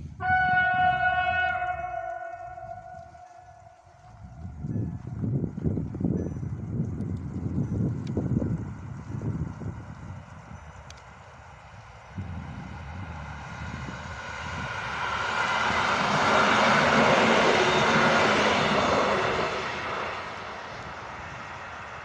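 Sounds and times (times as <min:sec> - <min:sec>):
train passing on rails: 0:00.0 - 0:22.0.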